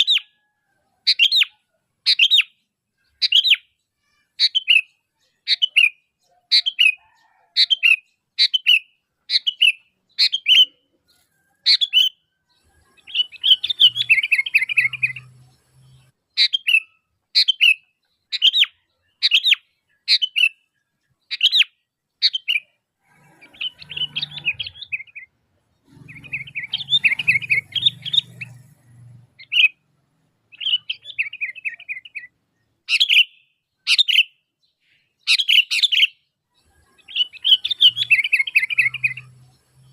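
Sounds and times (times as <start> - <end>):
bird chattering: 1.0 - 29.8, 30.5 - 34.3, 35.2 - 39.9
bird calling sharp notes: 13.0 - 15.4, 21.3 - 28.7, 36.9 - 39.4.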